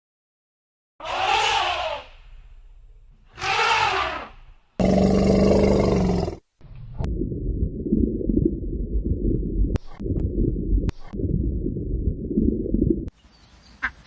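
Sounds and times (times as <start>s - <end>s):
animal loud pitched call: 1.0s - 2.2s, 3.3s - 4.5s
low rough animal noise: 1.0s - 2.3s, 3.3s - 6.4s.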